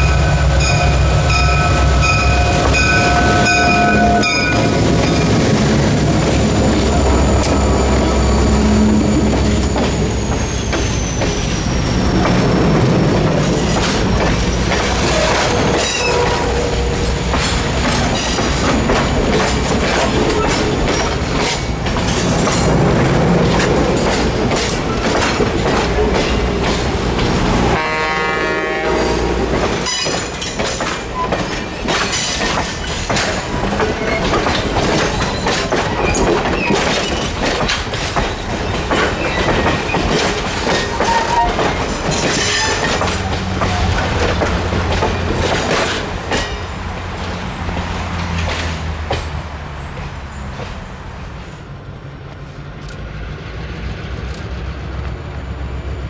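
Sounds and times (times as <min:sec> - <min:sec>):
train coaches rumbling past: 0:00.0 - 0:56.0
high wheel squeal: 0:06.3 - 0:12.2, 0:15.0 - 0:17.0, 0:40.8 - 0:44.1
wheels clicking over rail joints: 0:09.3 - 0:27.7, 0:29.5 - 0:50.8.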